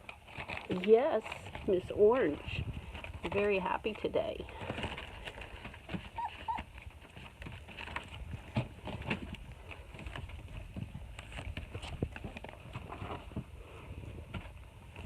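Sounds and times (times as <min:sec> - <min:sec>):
puppies tapping and scuffing: 0:00.0 - 0:13.5
puppy squeaks: 0:06.2 - 0:06.7.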